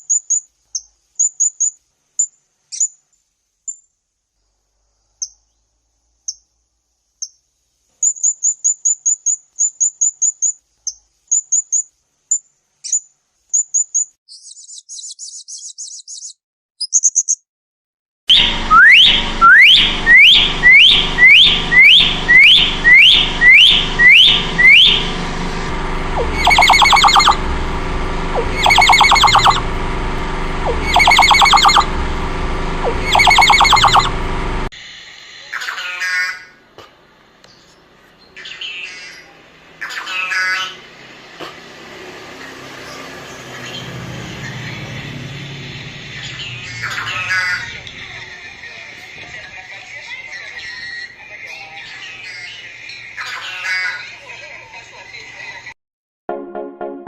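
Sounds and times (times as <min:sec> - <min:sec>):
songbird chirps and trills: 0:05.0 - 0:06.5, 0:08.0 - 0:17.4, 0:26.2 - 0:27.4, 0:28.4 - 0:29.6, 0:30.7 - 0:31.9, 0:32.8 - 0:34.1
downward-sweeping bird whistles: 0:18.3 - 0:25.0, 0:26.3 - 0:27.4, 0:28.4 - 0:29.6, 0:30.7 - 0:31.9, 0:32.9 - 0:34.1.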